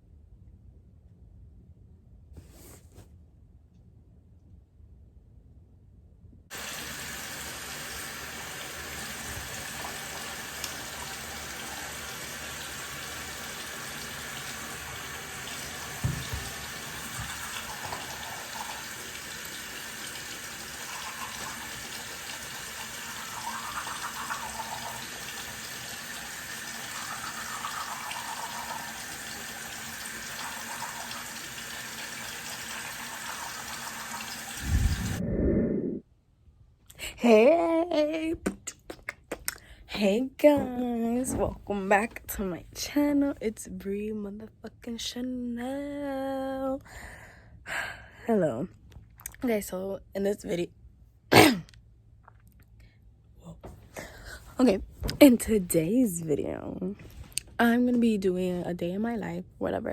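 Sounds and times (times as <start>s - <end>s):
running water: 6.5s - 35.2s.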